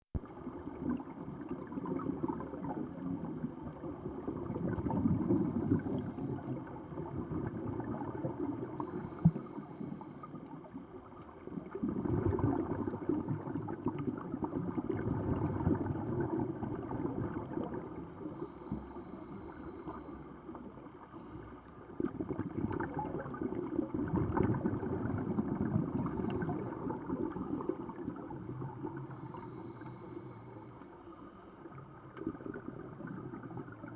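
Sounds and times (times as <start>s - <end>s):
exhaled bubbles gurgling: 0.2s - 33.9s
regulator inhalation hiss: 8.8s - 10.5s, 18.2s - 20.5s, 29.0s - 31.3s.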